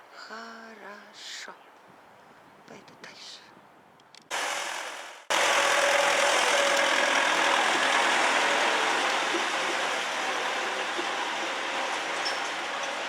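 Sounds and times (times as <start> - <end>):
truck engine running: 4.3 - 13.0.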